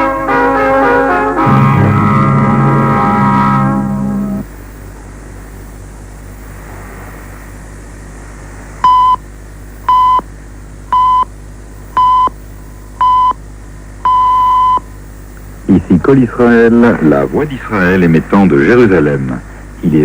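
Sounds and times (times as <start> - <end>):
radio receiver hiss and hum: 1.4 - 20.0
radio time signal beeps: 8.8 - 9.2, 14.1 - 14.9.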